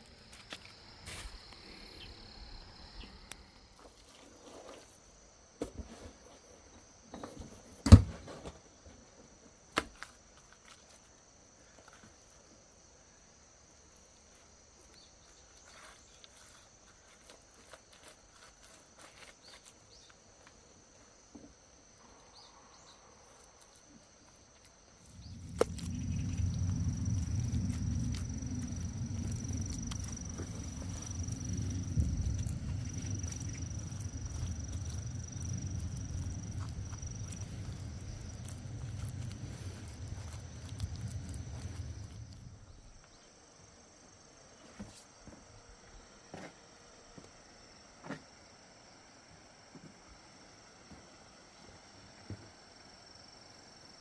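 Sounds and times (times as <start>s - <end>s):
low rumble: 24.9s - 43.1s.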